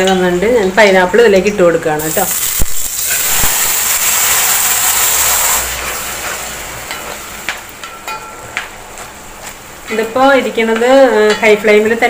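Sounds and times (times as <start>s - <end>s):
fruit sizzling in hot fat: 2.0s - 8.1s
stirring against metal pan: 5.6s - 8.4s.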